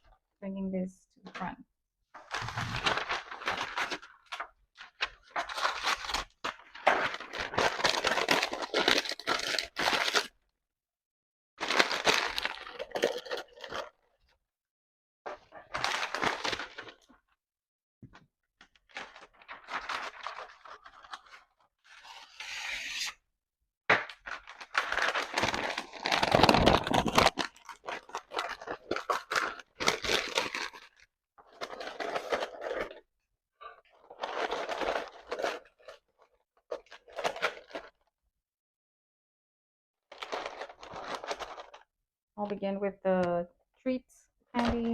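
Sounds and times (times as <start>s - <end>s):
paper crumpling and rustling: 2.2s - 10.4s, 11.6s - 14.0s, 15.3s - 17.2s, 18.6s - 23.1s, 23.9s - 33.0s, 33.8s - 38.1s, 40.1s - 41.9s.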